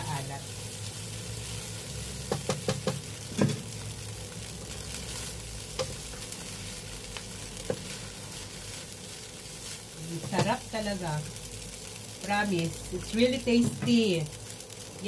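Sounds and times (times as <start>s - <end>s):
rice sizzling in a pan: 0.0s - 15.0s
spatula knocking against pan: 2.3s - 3.6s.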